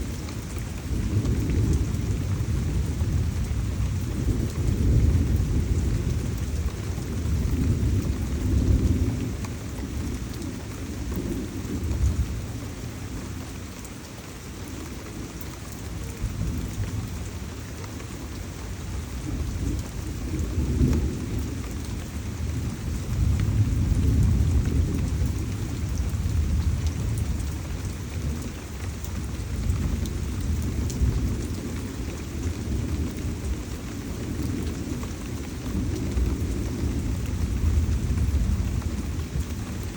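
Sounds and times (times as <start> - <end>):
heavy rain: 0.0 - 39.9
deep rolling thunder: 19.2 - 28.4, 29.2 - 39.4.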